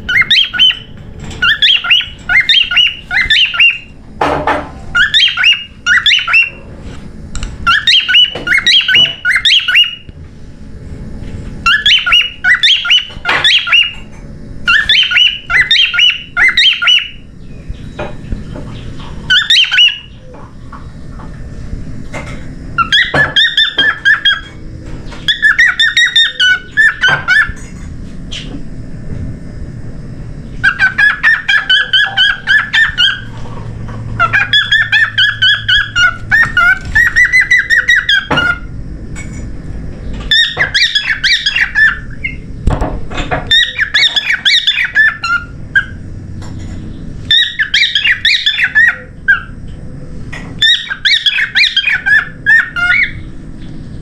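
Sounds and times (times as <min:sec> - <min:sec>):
cockatiel chattering chirps: 0:00.1 - 0:03.9, 0:04.9 - 0:06.6, 0:07.6 - 0:10.1, 0:11.6 - 0:14.0, 0:14.7 - 0:17.2, 0:19.3 - 0:20.2, 0:22.8 - 0:24.5, 0:25.3 - 0:27.6, 0:30.6 - 0:33.4, 0:34.2 - 0:38.7, 0:40.3 - 0:42.4, 0:43.5 - 0:46.0, 0:47.3 - 0:49.6, 0:50.6 - 0:53.2.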